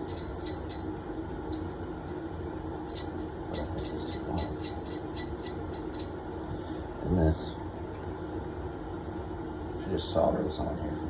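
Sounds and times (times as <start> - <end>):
metallic clinks of plumbing parts: 0.0 - 0.9, 2.9 - 6.2
steady background hum: 0.0 - 11.0.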